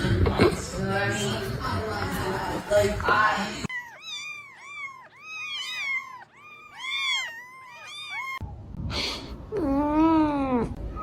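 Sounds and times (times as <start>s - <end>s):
cat mewing: 3.7s - 8.4s.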